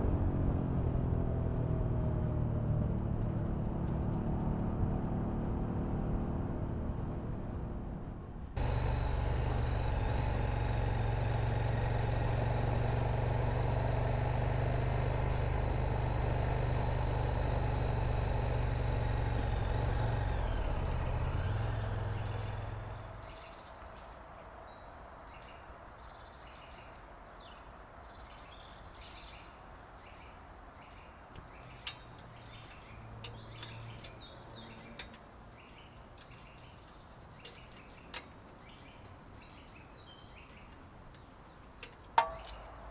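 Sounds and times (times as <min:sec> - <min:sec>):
motorcycle engine running: 0:08.6 - 0:23.5
birds chirping: 0:08.6 - 0:42.9.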